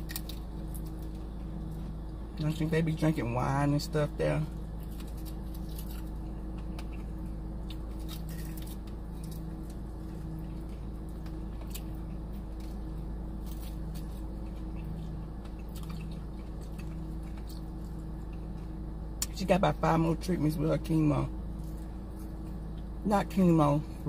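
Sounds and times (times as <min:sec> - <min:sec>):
steady low hum: 0:00.0 - 0:24.0
wet chewing: 0:04.5 - 0:19.3, 0:21.5 - 0:22.9.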